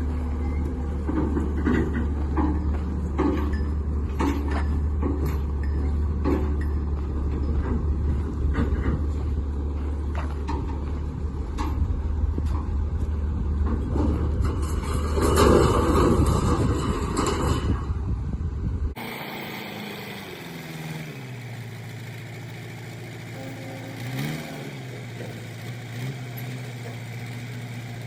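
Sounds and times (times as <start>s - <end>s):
heavy vehicle engine droning: 0.0s - 28.0s
knocks and rattles: 0.8s - 18.0s.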